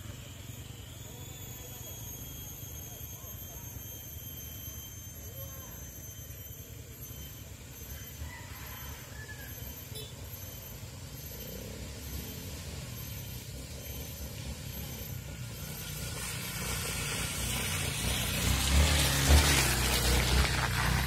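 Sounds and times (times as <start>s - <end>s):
motorcycle engine rumbling: 9.6s - 21.0s.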